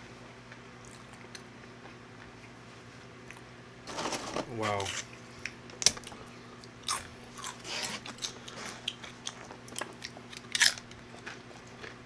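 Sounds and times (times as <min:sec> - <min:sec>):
tortilla chips crunching: 0:06.8 - 0:12.0.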